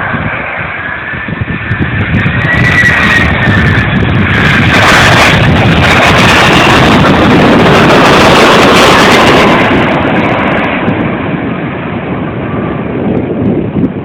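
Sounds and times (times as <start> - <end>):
jet engines at takeoff: 0.0 - 14.0
wind buffeting microphone: 0.0 - 14.0.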